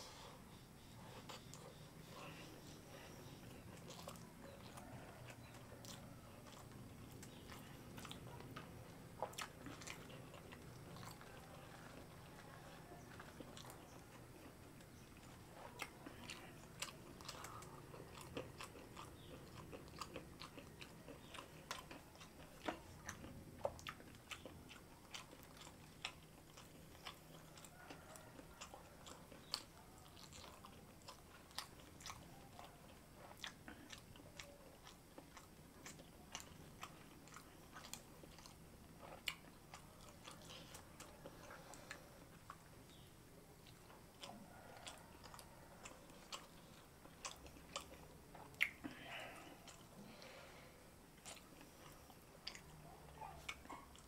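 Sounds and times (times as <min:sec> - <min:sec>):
person chewing: 0:00.1 - 0:54.0.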